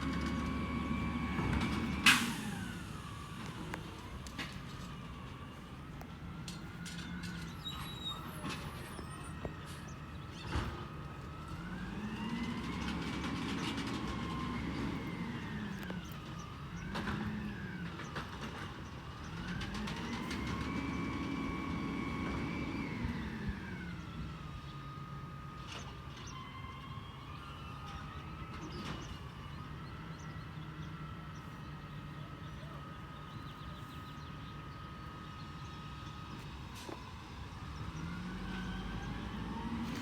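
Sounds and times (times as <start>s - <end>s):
truck engine revving: 0.0s - 24.7s, 33.0s - 40.0s
hydraulic pump whining: 0.0s - 26.4s.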